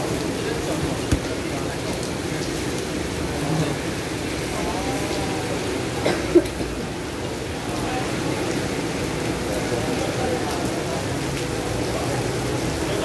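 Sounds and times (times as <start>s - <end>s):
rain on an umbrella: 0.0s - 13.0s.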